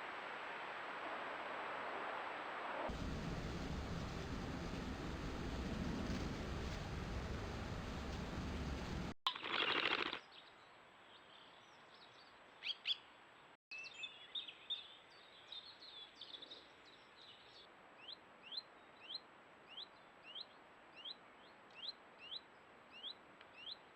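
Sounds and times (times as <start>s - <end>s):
small bird chirping: 13.7s - 23.9s.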